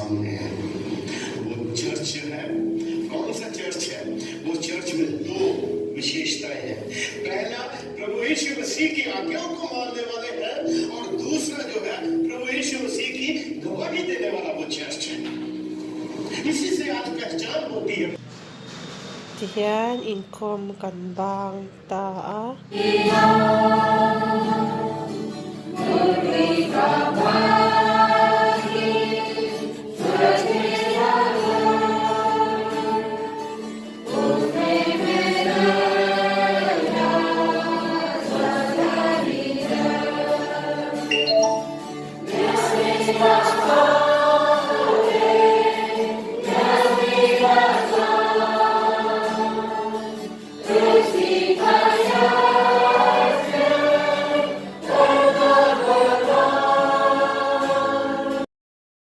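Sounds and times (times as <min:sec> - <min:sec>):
group singing a hymn: 0:00.0 - 0:05.9, 0:22.7 - 0:58.5.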